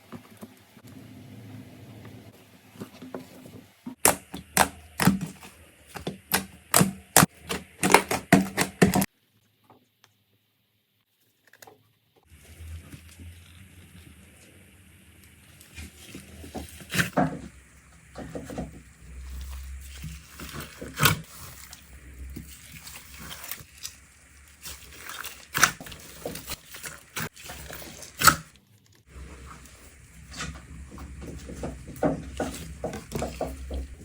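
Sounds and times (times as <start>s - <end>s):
slime squished by hand: 19.2s - 28.5s.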